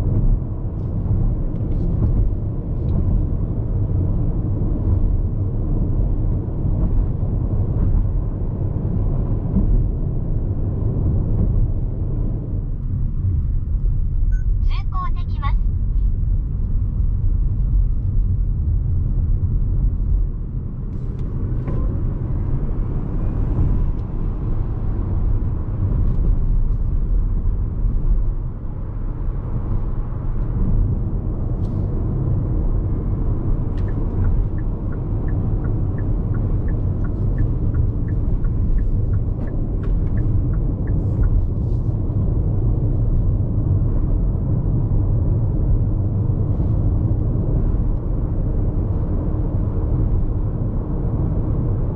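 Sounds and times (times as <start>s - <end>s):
road and tyre noise in car: 0.0s - 51.9s
light ticks: 33.7s - 41.6s.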